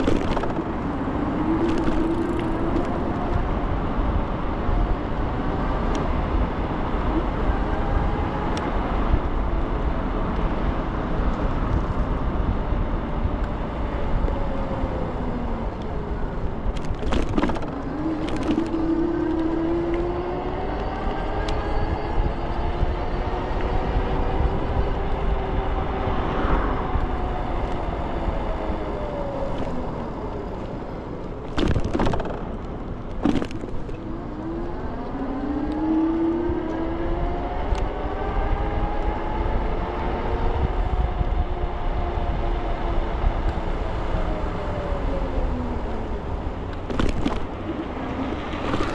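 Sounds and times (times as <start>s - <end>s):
wheels rolling: 0.0s - 4.0s, 14.0s - 22.4s, 25.8s - 37.2s, 43.6s - 48.9s.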